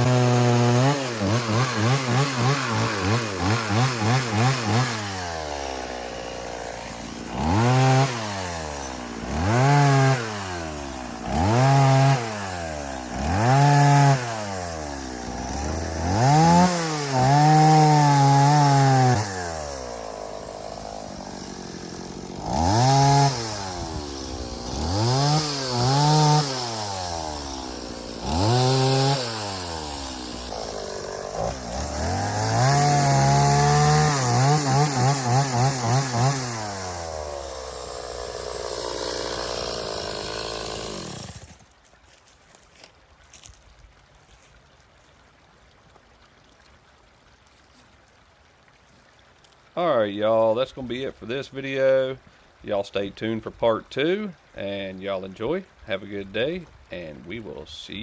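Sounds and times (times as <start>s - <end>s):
chainsaw revving and idling: 0.0s - 43.6s.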